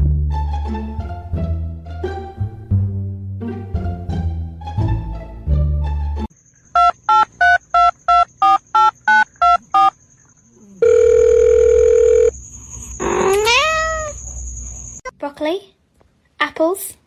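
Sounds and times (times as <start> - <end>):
music: 0.0 - 6.3
steady dial tone: 6.8 - 9.9, 10.8 - 12.4.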